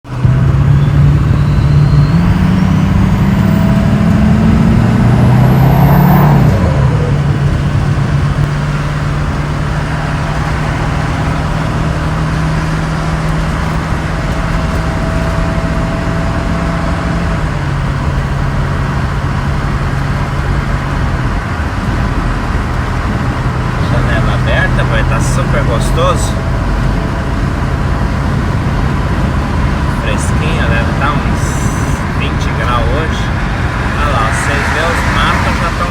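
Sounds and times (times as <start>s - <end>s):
diesel engine accelerating: 0.0s - 35.9s
turbo whistle: 0.6s - 3.8s.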